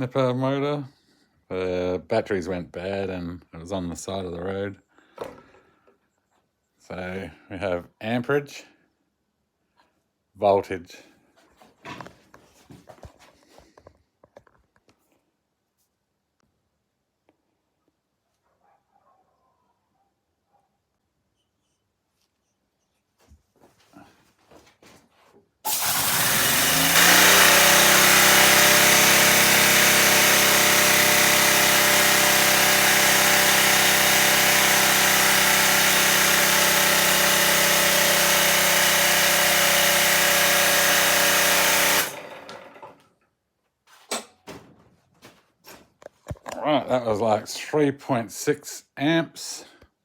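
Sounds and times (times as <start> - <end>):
motor spinning with high whine: 25.7 - 42.2.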